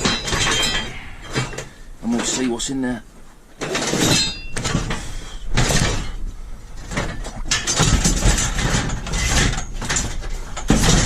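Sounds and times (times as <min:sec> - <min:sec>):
metal casing scraping and knocking: 0:00.0 - 0:02.7, 0:03.5 - 0:11.0.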